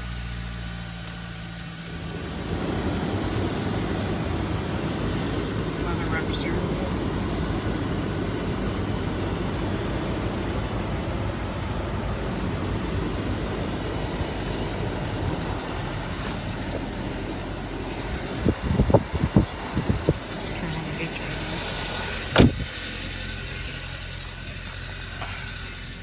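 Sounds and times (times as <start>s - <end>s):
car engine idling: 0.0s - 26.0s
loud short thumps: 22.3s - 22.8s.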